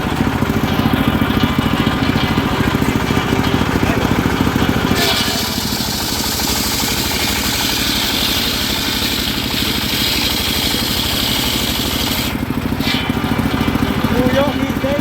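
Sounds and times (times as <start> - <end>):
sawmill engine beating steadily: 0.0 - 15.0
saw blade cutting wood hissing: 4.8 - 14.2.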